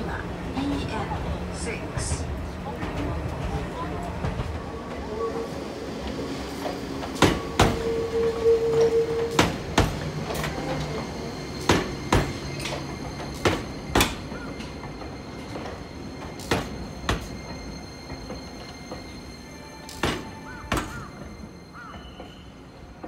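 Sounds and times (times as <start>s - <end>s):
train wheels clacking over rail joints: 11.6s - 19.1s.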